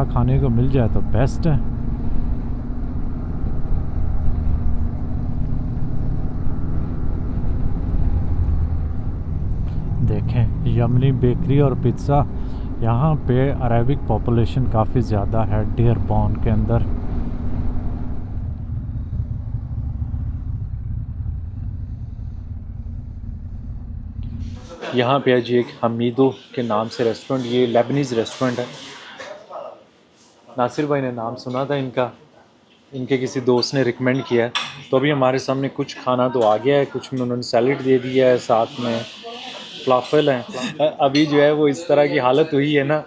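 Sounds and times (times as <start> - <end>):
motorcycle engine rumble: 0.0 - 24.8
wind noise: 15.6 - 24.7.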